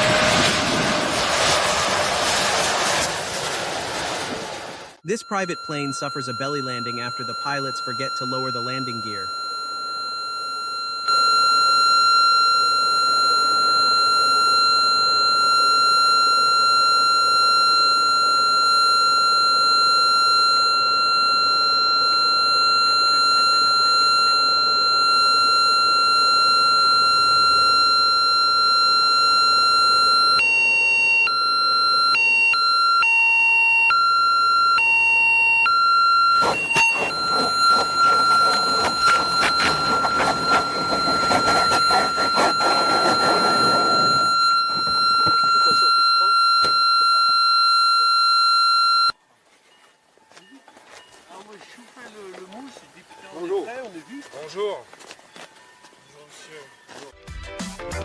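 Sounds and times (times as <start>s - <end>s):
rush of noise with rattling: 0.0s - 5.0s
warning horn high tone: 5.1s - 33.2s, 35.6s - 48.2s.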